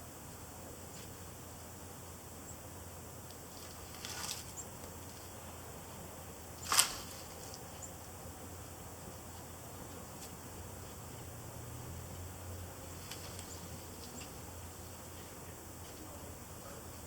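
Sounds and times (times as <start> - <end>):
faint steady hiss: 0.0 - 17.0
short crackle: 6.6 - 7.6.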